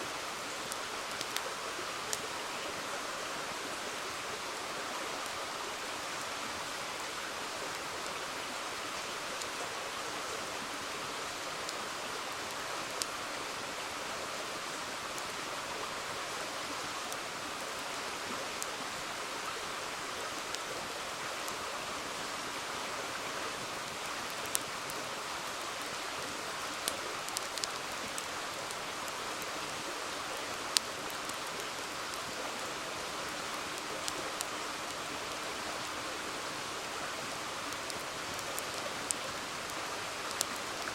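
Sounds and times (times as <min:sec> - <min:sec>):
river water flowing: 0:00.0 - 0:40.9
campfire popping and crackling: 0:00.6 - 0:02.3, 0:23.8 - 0:35.6, 0:37.4 - 0:40.9.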